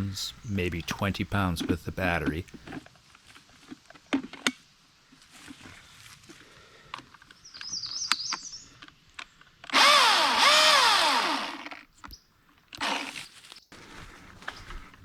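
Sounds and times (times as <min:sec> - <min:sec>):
battery chainsaw motor whining: 0:09.7 - 0:11.8, 0:12.8 - 0:13.3.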